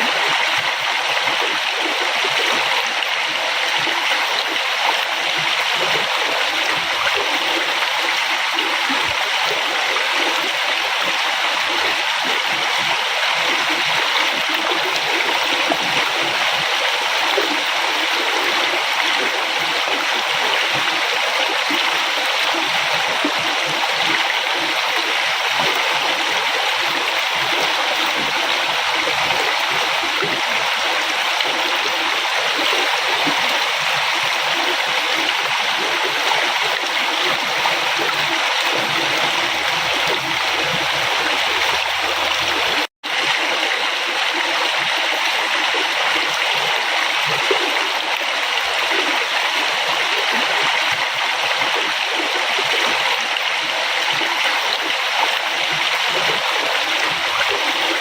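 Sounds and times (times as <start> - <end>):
river water rushing: 13.2 - 52.4.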